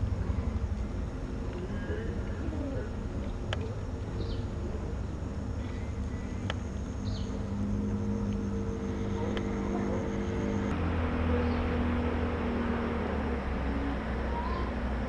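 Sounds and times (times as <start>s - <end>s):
motor humming: 2.8s - 12.0s.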